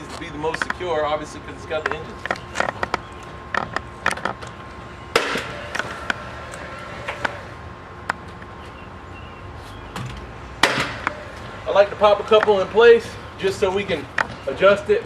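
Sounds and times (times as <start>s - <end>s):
nail gun firing: 5.2s - 5.6s, 10.6s - 11.0s.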